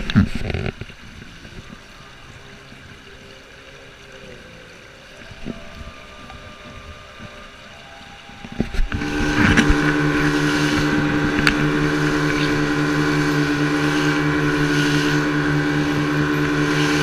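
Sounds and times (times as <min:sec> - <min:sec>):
boat motor running: 0:00.0 - 0:17.0
motor knocks: 0:08.4 - 0:17.0.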